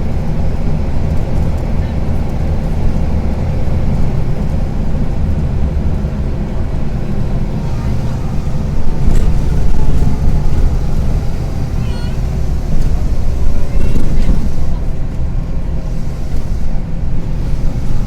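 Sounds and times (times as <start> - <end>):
bus engine rumbling: 0.0 - 18.0.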